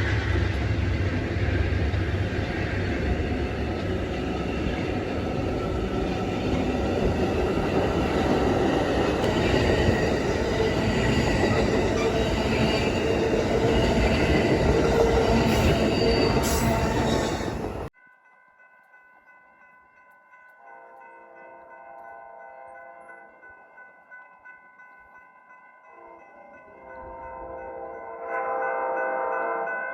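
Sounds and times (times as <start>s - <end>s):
train wheels rumbling on rail: 0.0s - 17.9s.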